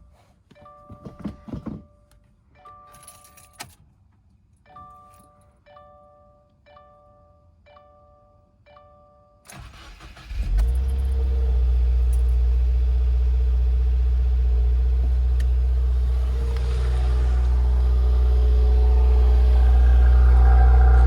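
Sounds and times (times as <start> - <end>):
car engine starting and idling: 9.5 - 21.0.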